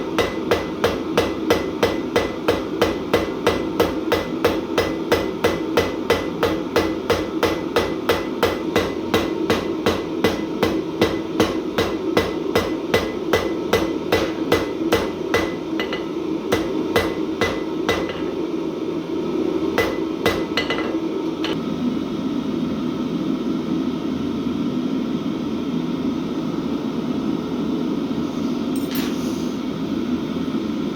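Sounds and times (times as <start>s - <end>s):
hammer striking steel on anvil: 0.0s - 18.6s, 19.7s - 21.6s, 28.8s - 29.4s
steady low hum: 0.0s - 30.9s.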